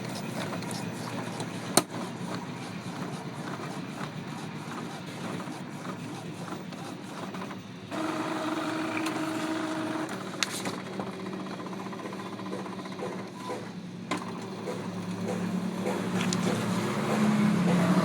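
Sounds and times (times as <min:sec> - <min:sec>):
printer motor whirring: 0:00.0 - 0:18.0
printer sharp click: 0:01.7 - 0:02.0, 0:08.0 - 0:11.0.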